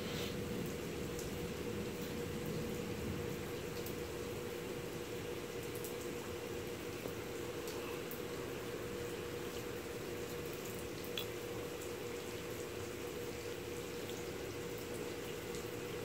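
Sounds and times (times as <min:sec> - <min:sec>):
constant low hum: 0:00.0 - 0:16.0
rain falling: 0:00.0 - 0:16.0
drips and ticks: 0:00.3 - 0:16.0.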